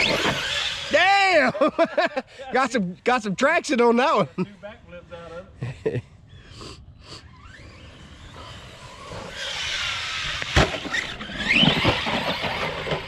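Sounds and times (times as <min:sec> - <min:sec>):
rc truck motor whine: 0:00.0 - 0:01.0, 0:07.2 - 0:13.0
tyre noise: 0:07.5 - 0:13.0.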